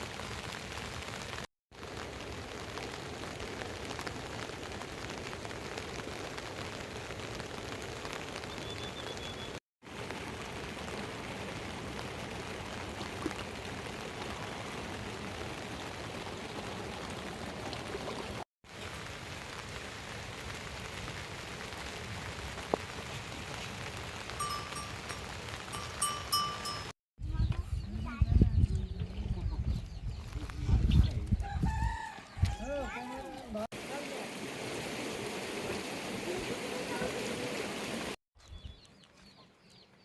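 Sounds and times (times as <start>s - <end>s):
steady rain falling: 0.0s - 26.9s, 33.6s - 38.2s
livestock bell clinking: 24.4s - 26.9s.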